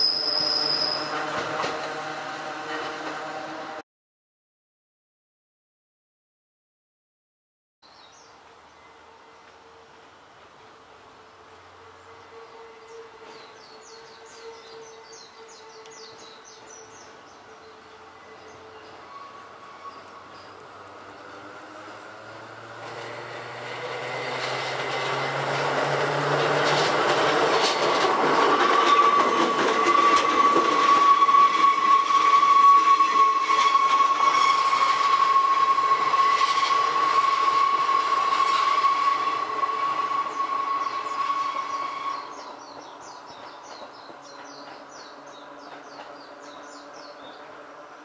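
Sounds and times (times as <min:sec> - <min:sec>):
electric railcar rumbling: 0:00.0 - 0:03.8, 0:08.3 - 0:48.0
wheels clicking over rail joints: 0:23.9 - 0:32.0, 0:42.7 - 0:47.4.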